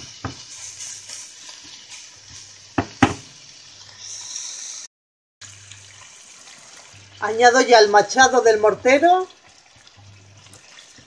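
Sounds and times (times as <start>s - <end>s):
food sizzling in a pan: 0.0s - 11.0s
sharp knocks: 2.8s - 3.2s.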